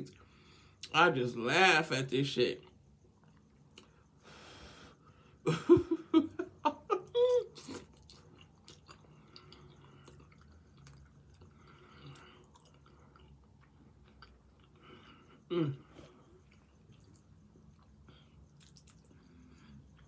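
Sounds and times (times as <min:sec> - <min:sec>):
person chewing: 0:07.5 - 0:15.2, 0:16.4 - 0:19.3.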